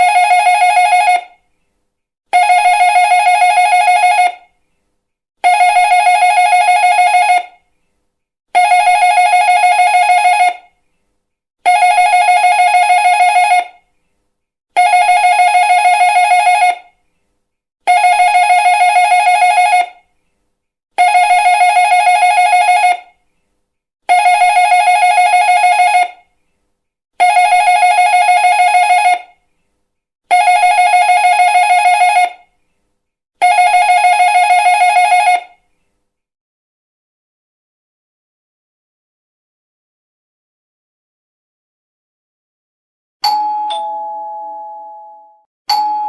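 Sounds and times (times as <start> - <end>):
electric doorbell ringing: 43.2 - 46.0.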